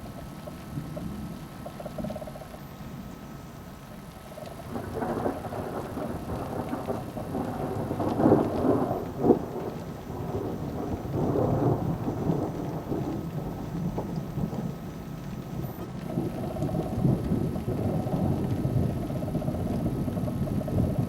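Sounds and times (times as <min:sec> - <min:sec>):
rain: 0:00.0 - 0:21.0
thunder rumbling: 0:04.4 - 0:21.0
sharp thunder crack: 0:04.7 - 0:14.9.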